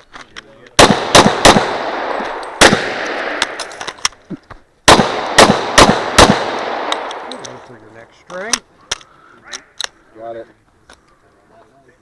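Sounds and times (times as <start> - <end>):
pistol shots with ringing echo: 0.8 - 3.8, 4.9 - 7.4.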